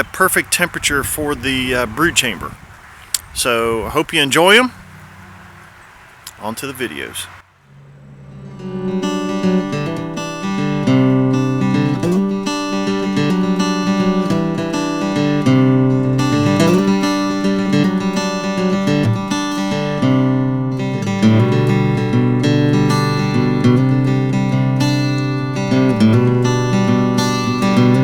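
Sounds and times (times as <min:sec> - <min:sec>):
acoustic guitar strumming: 0:07.7 - 0:28.0.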